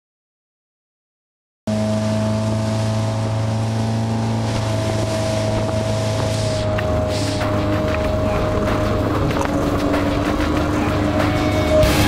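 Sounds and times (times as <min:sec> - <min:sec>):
motorboat engine running: 0:01.7 - 0:12.0
water noise from hull: 0:01.7 - 0:12.0
wind buffeting microphone: 0:04.4 - 0:11.0.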